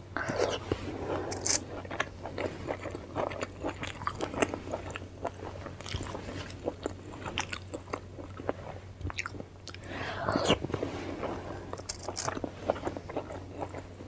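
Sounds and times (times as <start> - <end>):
faint low hum: 0.0 - 14.0
close chewing with mouth clicks: 0.2 - 14.0
crunching: 11.7 - 13.8.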